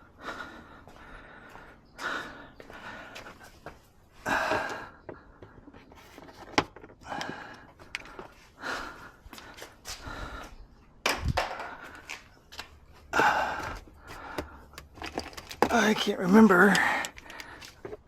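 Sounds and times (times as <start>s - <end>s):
man breathing heavily: 0.0s - 5.9s, 7.0s - 18.0s
sharp clicks of tools handled: 14.4s - 18.0s.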